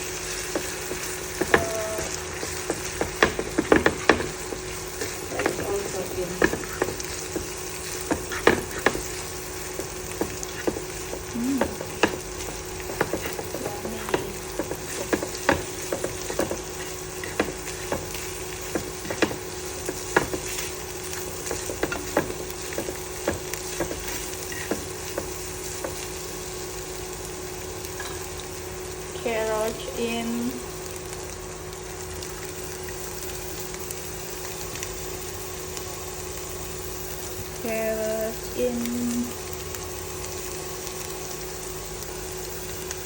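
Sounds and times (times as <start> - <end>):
food sizzling in hot oil: 0.0 - 43.0
spatula scraping a pan: 8.0 - 10.8.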